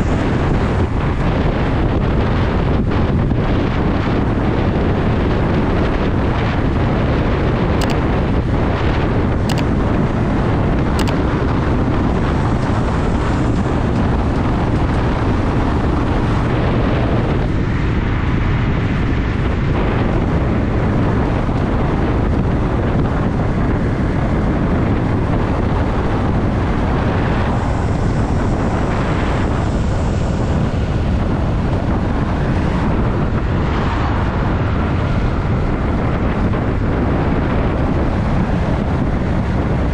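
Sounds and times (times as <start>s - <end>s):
motorcycle engine running: 0.0s - 39.9s
wind rushing over microphone: 0.0s - 39.9s
faint high clicks: 11.0s - 11.2s.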